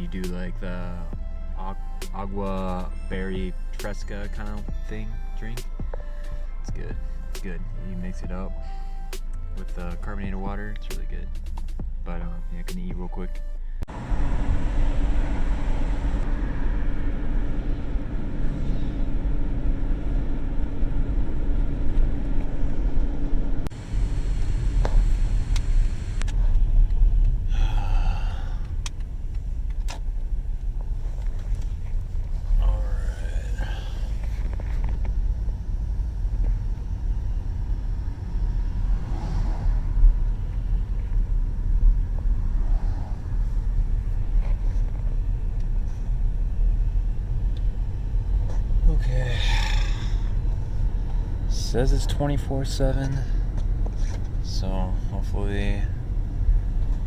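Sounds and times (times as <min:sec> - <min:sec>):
car engine and road rumble: 0:00.0 - 0:57.0
constant low hum: 0:00.0 - 0:57.0.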